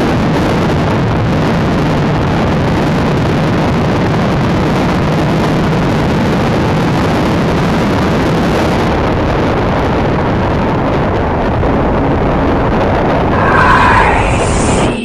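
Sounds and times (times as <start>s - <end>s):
loud wind rush: 12.9s - 15.0s
higher tone: 13.3s - 15.0s.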